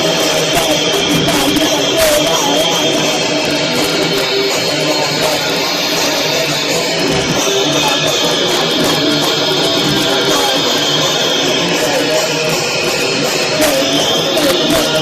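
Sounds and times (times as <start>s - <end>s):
punk band playing live: 0.0s - 15.0s.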